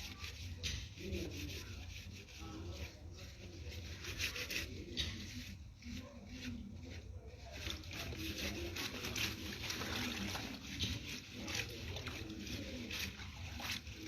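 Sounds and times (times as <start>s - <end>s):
small irregular knocks and rubs: 0.0s - 14.0s
water sloshing and splashing: 7.5s - 14.0s.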